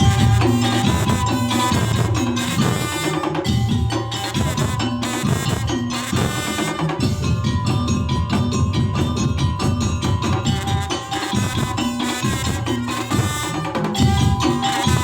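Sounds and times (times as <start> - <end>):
percussion music with drums: 0.0 - 15.0.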